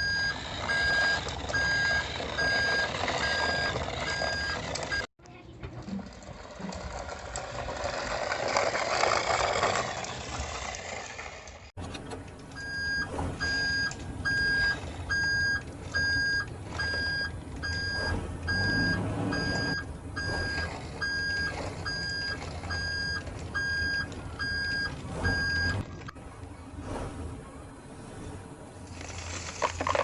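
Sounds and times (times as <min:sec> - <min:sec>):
truck reversing alarm beeping: 0:00.0 - 0:05.1, 0:12.5 - 0:25.9
low engine rumble: 0:00.0 - 0:30.0.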